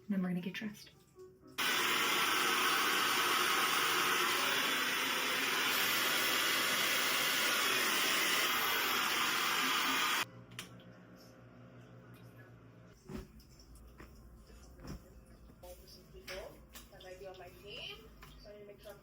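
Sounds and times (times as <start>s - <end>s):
hair dryer blowing: 1.6s - 10.2s.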